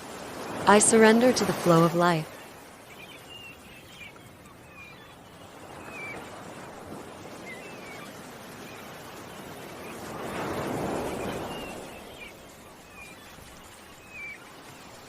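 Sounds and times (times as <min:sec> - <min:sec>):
ocean waves washing ashore: 0:00.0 - 0:15.0
faint bird chirps: 0:02.3 - 0:06.3, 0:07.4 - 0:10.3.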